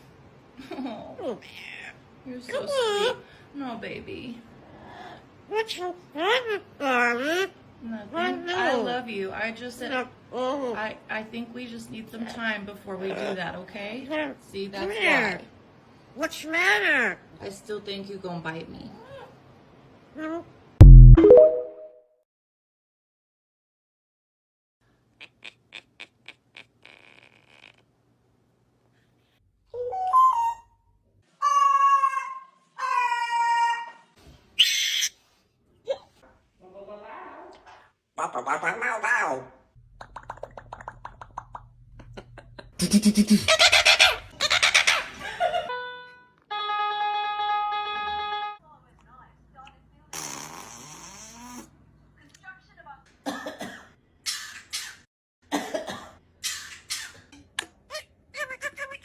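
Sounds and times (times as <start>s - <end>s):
parrot wavering whistled calls: 29.8s - 30.8s, 31.4s - 33.5s, 34.6s - 35.2s
parrot calling: 31.4s - 35.2s, 42.8s - 45.3s
parrot raspy cough-like sounds: 42.8s - 44.8s, 53.2s - 57.4s.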